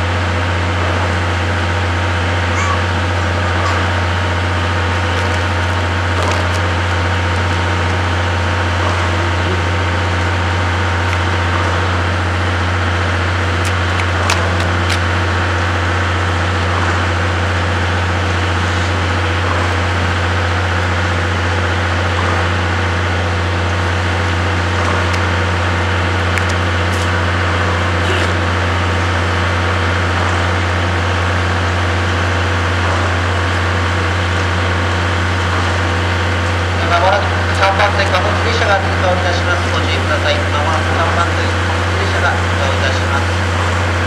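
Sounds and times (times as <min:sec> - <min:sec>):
low machinery hum: 0:00.0 - 0:44.0.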